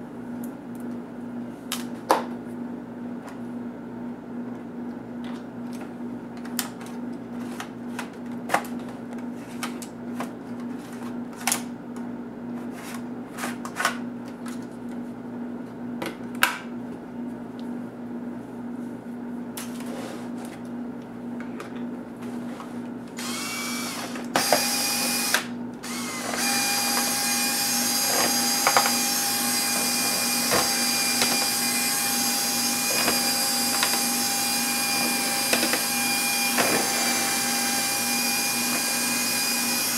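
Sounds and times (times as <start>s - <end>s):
small electric motor whine: 23.2s - 39.9s.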